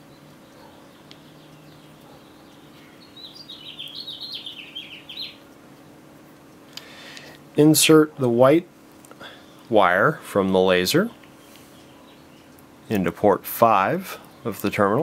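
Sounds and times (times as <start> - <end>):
small bird chirping: 0.0 - 6.0, 11.1 - 12.7
faint low hum: 0.0 - 15.0.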